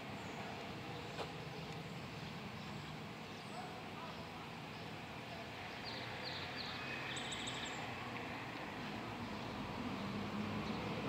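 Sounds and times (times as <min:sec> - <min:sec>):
bird chirps: 0:05.7 - 0:07.9.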